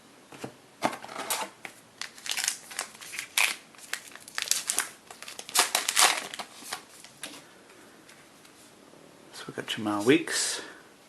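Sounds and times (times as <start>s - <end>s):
plastic wrapper crinkling: 2.0s - 7.4s.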